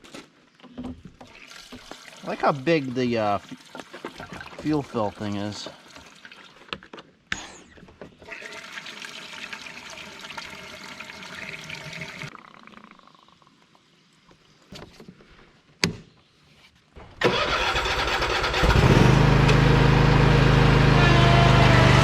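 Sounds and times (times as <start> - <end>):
fuel pouring into a tank: 1.2 - 6.8, 8.2 - 13.8
mower engine cranking and running: 17.2 - 22.0.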